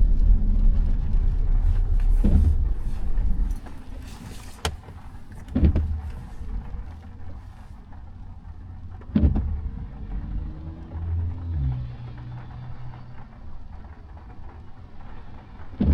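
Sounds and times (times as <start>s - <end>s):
dull thumps: 0.0s - 7.8s
car road rumble: 0.0s - 15.9s.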